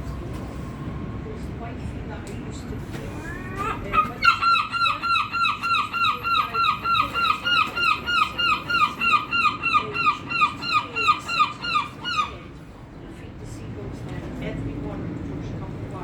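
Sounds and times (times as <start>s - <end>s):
gull squealing calls: 3.2s - 12.5s.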